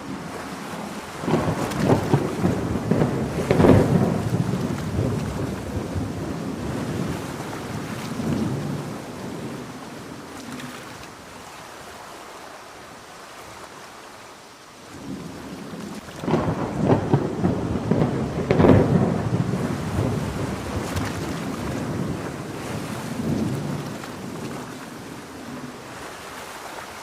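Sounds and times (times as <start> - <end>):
rolling thunder: 0.0 - 10.3, 15.0 - 25.8
crackling thunder peal: 0.0 - 10.7, 15.0 - 25.7
steady rain: 0.0 - 27.0.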